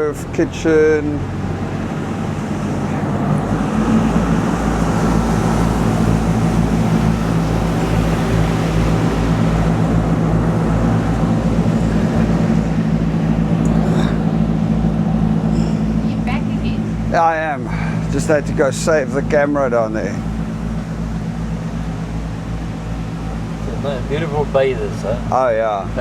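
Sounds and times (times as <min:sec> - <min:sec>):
motor boat engine running: 0:00.0 - 0:26.0.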